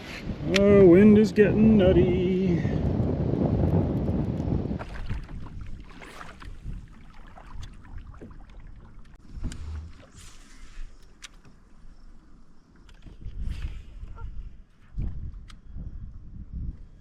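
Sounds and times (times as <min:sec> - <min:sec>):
water lapping against hull: 0:04.7 - 0:15.5.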